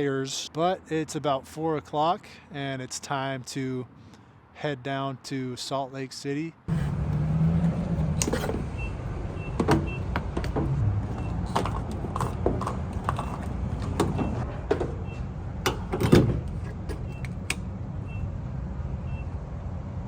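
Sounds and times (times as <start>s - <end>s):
vehicle low rumble: 6.7s - 20.0s
sharp knocks and clicks: 9.5s - 17.7s.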